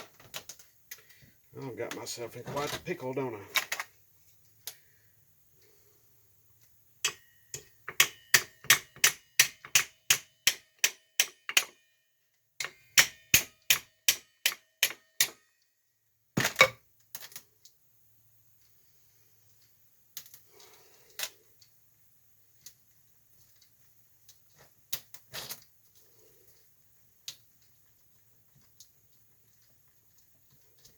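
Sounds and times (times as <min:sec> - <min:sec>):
hammer striking steel: 0:07.0 - 0:11.8, 0:12.6 - 0:15.4.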